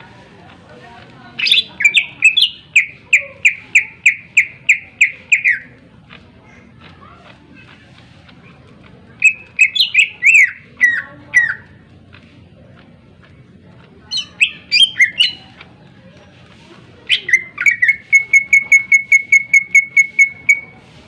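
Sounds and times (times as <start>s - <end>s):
bird whistling song: 1.4s - 5.7s, 9.2s - 11.7s, 14.1s - 15.5s, 17.1s - 20.8s.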